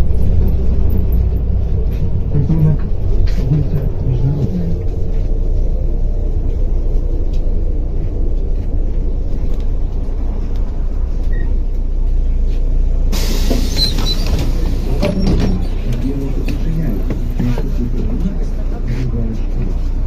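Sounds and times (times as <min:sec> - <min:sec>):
bus engine rumbling: 0:00.0 - 0:20.0
compressed air hissing: 0:13.1 - 0:14.8.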